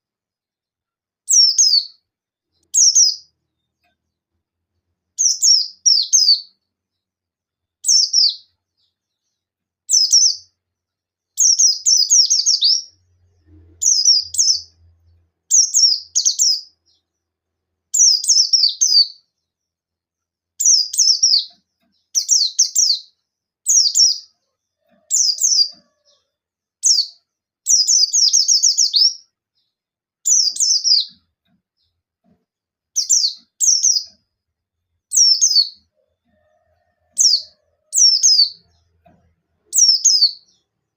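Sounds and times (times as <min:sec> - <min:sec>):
bird twittering song: 0:01.3 - 0:04.0, 0:05.2 - 0:07.1, 0:07.7 - 0:10.6, 0:11.3 - 0:17.3, 0:17.9 - 0:19.8, 0:20.6 - 0:32.0, 0:33.0 - 0:40.9.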